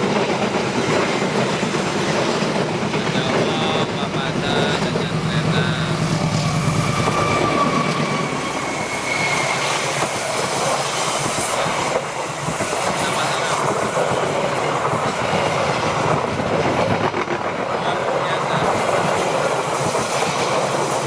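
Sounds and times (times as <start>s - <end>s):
passenger train passing fast: 0.0s - 21.0s.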